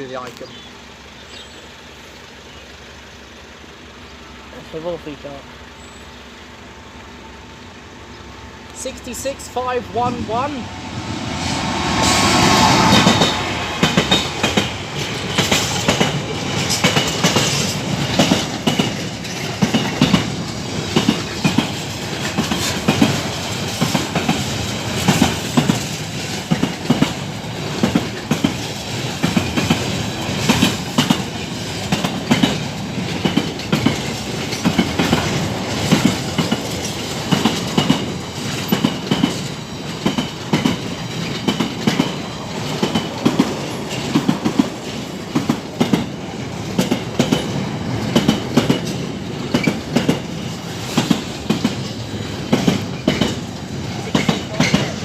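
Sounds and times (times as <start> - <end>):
freight wagon wheels clacking: 13.0 - 55.0.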